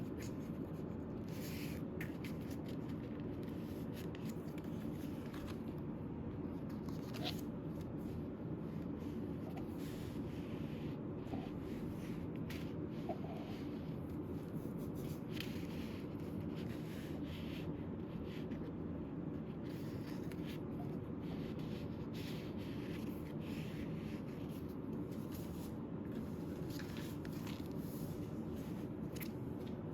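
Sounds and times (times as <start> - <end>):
paper rustling: 0.0 - 5.8, 6.6 - 8.2, 19.5 - 29.8
low room hum: 0.0 - 29.9.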